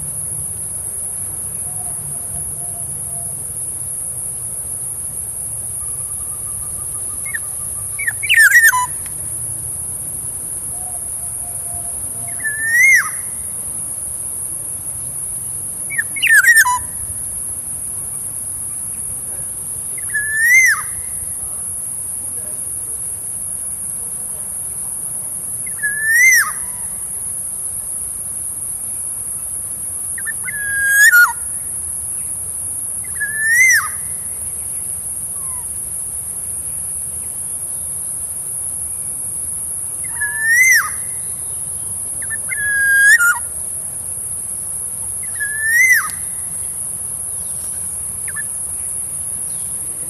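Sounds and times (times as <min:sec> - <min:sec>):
insect drone: 0:00.0 - 0:50.0
oriole fluty whistled call: 0:05.8 - 0:09.0, 0:10.8 - 0:13.3, 0:15.9 - 0:16.9, 0:20.0 - 0:21.1, 0:25.7 - 0:26.8, 0:30.2 - 0:31.4, 0:33.1 - 0:34.1, 0:40.0 - 0:41.4, 0:42.2 - 0:43.5, 0:45.2 - 0:46.3.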